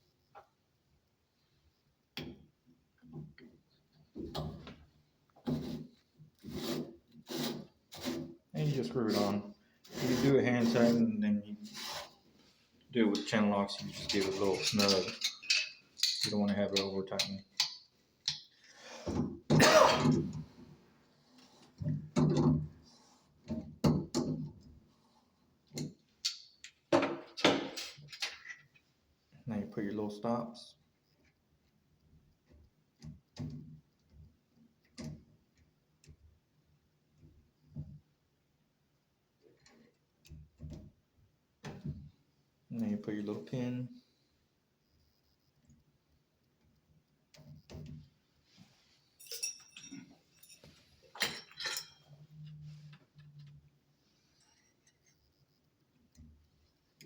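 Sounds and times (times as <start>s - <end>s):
metal parts clicking and knocking: 13.1s - 18.7s, 25.8s - 28.8s, 49.2s - 52.6s.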